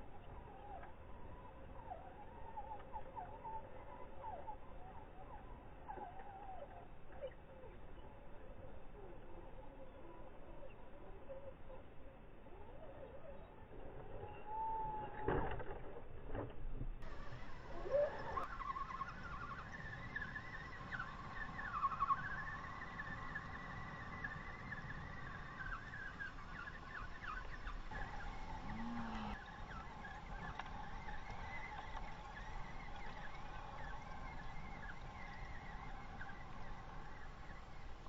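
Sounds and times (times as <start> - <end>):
toy truck electric motor whining: 27.9 - 29.5.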